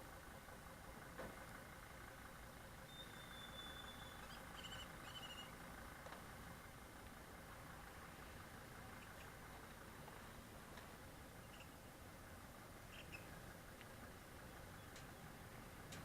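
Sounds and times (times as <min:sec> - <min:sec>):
thin high whistle: 0:02.9 - 0:05.5
faint high chirps: 0:02.9 - 0:05.6, 0:11.4 - 0:11.8, 0:12.9 - 0:13.3.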